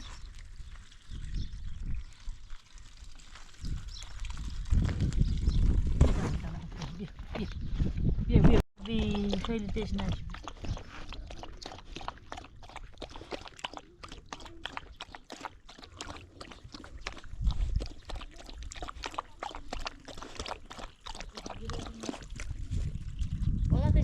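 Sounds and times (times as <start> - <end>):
dog lapping water: 8.8 - 23.5.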